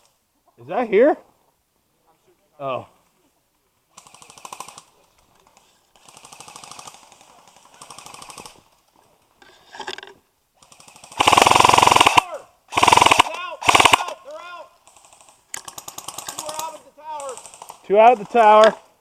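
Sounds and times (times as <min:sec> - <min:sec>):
airsoft guns firing bursts: 0:04.0 - 0:04.9, 0:06.0 - 0:08.6, 0:10.6 - 0:18.8.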